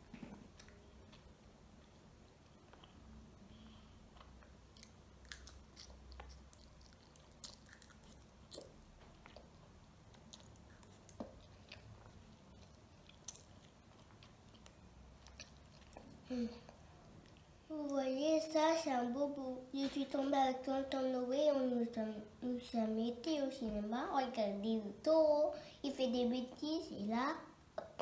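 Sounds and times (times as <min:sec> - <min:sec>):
child chewing: 0:02.3 - 0:17.5.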